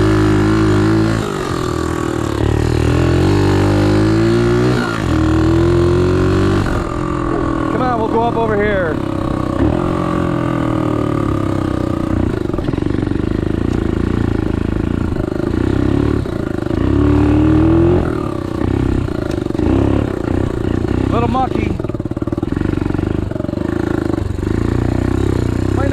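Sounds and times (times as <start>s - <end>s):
pit bike engine revving: 0.0s - 25.9s.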